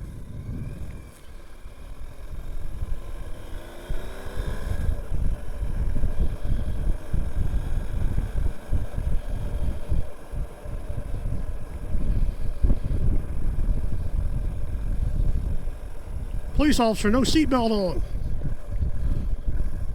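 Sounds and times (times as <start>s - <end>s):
wind buffeting microphone: 0.0s - 1.2s, 4.5s - 17.4s, 18.0s - 19.9s
motorcycle engine accelerating: 0.0s - 16.6s, 17.2s - 19.9s.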